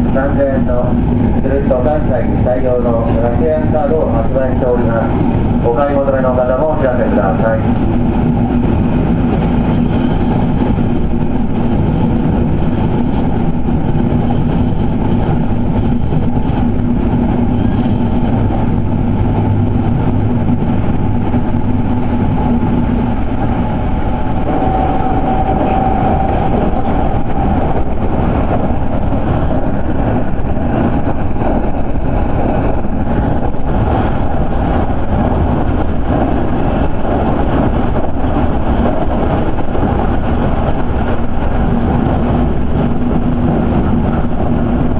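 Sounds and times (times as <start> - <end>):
steady hum: 0.0 - 44.9
train wheels rumbling on rail: 0.0 - 44.9
brief higher whine: 24.4 - 27.6.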